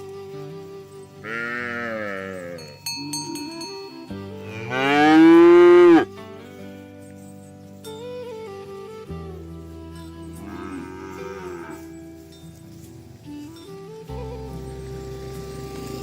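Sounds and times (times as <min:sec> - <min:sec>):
background music: 0:00.0 - 0:16.0
cow mooing: 0:01.2 - 0:02.7, 0:04.4 - 0:06.1, 0:10.4 - 0:12.0.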